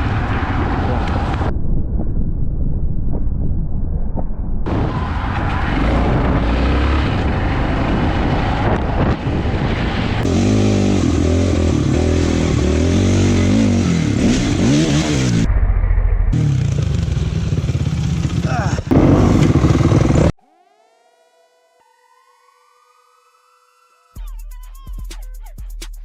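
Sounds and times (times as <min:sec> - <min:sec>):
wind noise: 0:00.0 - 0:12.6
motorcycle engine revving: 0:04.7 - 0:15.5, 0:16.3 - 0:20.4.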